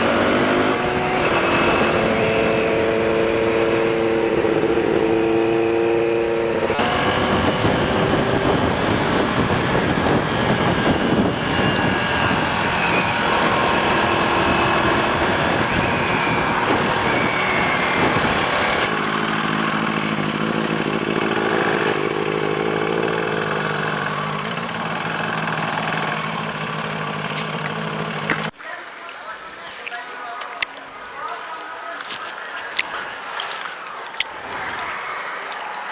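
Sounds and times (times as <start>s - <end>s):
motorcycle engine running: 6.2s - 28.5s
wind rush on microphone: 6.7s - 18.9s.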